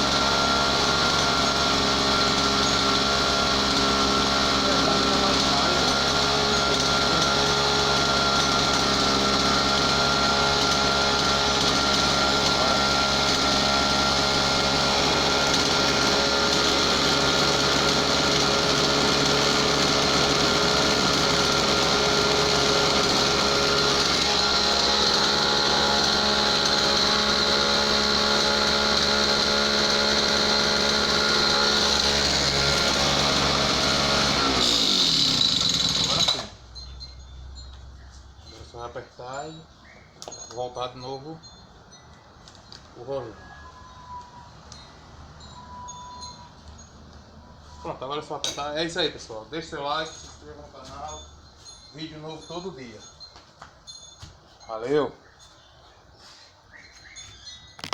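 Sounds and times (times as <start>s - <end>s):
brush cutter engine running: 0.0s - 37.0s.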